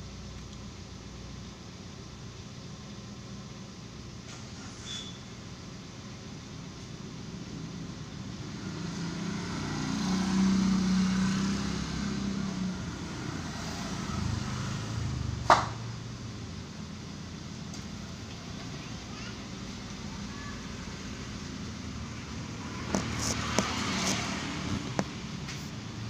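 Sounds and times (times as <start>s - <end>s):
car engine running: 5.5s - 26.0s
sharp knock: 15.4s - 15.8s.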